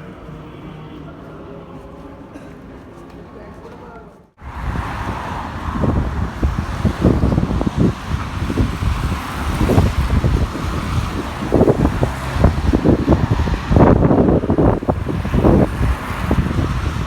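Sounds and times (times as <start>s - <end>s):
wind buffeting microphone: 4.4s - 17.0s.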